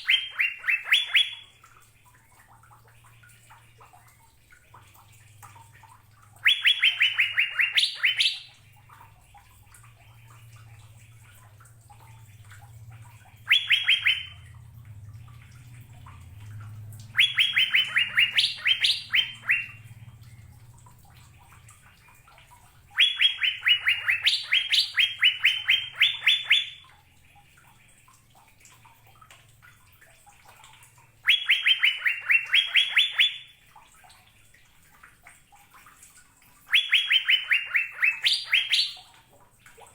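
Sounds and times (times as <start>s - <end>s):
bird singing clear repeated notes: 0.0s - 1.6s, 6.4s - 9.0s, 13.4s - 14.6s, 16.3s - 20.6s, 21.4s - 26.9s, 31.1s - 33.6s, 36.7s - 39.1s.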